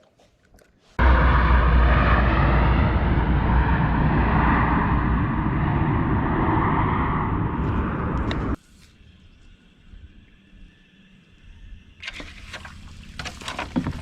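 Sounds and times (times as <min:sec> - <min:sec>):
wind buffeting microphone: 0:01.0 - 0:08.6.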